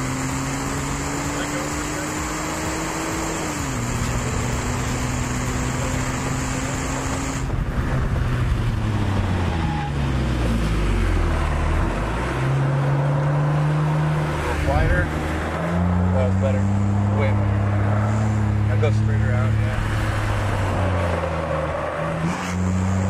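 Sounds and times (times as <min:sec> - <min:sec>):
car engine running at speed: 0:00.0 - 0:23.0
wind rush in car cabin: 0:04.1 - 0:10.8.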